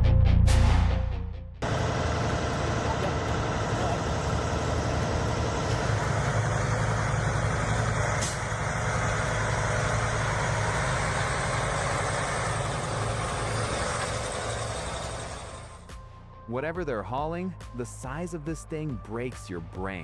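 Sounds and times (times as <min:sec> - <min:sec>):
road noise: 0:01.6 - 0:15.9
truck engine humming: 0:01.6 - 0:16.0.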